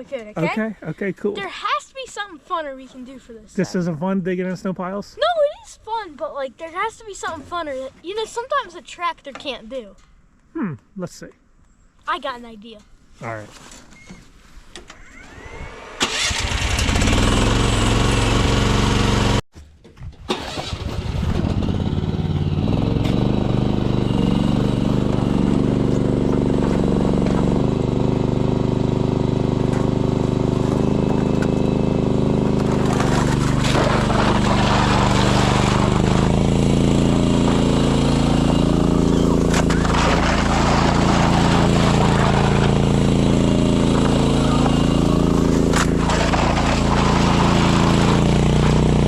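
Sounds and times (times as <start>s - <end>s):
excavator engine running: 15.3s - 19.4s, 20.3s - 49.0s.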